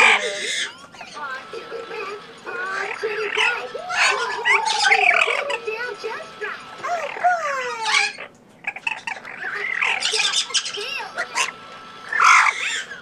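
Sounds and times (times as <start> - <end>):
parrot whistling and squawking: 0.0 - 1.2, 2.7 - 5.7, 6.8 - 13.0.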